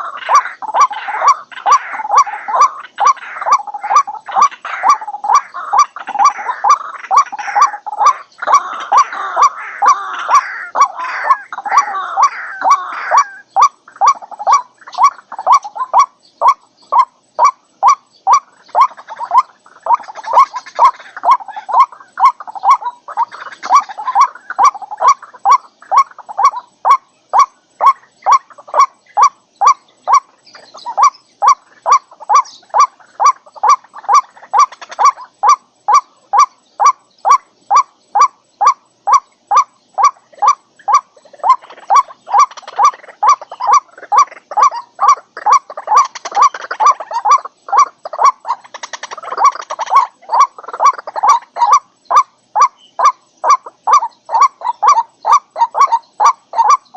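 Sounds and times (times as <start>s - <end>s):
rough overlapping bird calls: 0.0s - 56.9s
waterhen calling: 0.0s - 56.9s.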